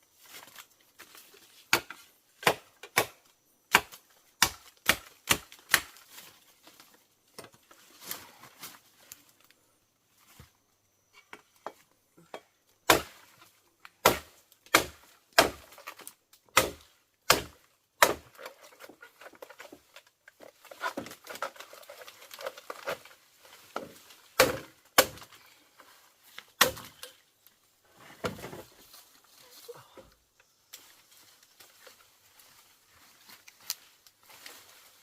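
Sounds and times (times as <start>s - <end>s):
blade chopping bamboo: 1.7s - 6.0s, 12.8s - 13.3s, 14.0s - 18.9s, 23.8s - 25.3s, 26.6s - 27.1s
rustling and scraping: 6.0s - 9.5s, 18.4s - 24.4s, 27.8s - 29.7s.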